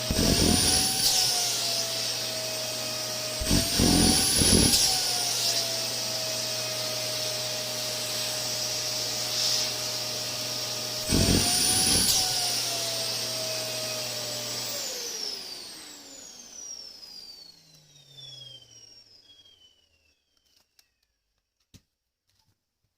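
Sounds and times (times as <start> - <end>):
vacuum cleaner running: 0.0 - 20.2
vacuum motor spinning down: 0.0 - 21.0.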